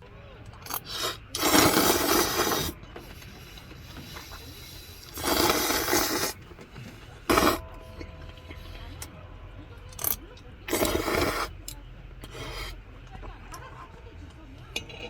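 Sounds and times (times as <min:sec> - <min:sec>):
rough scraping: 0:05.0 - 0:09.0.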